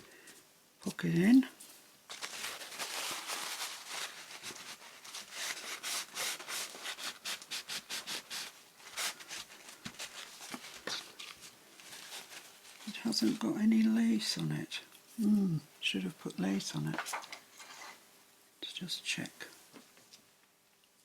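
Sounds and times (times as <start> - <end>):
hands rubbing paper: 2.1 - 13.4.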